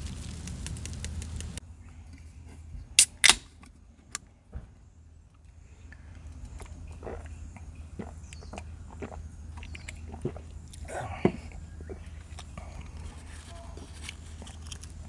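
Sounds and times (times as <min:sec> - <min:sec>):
campfire crackling: 0:00.0 - 0:01.6.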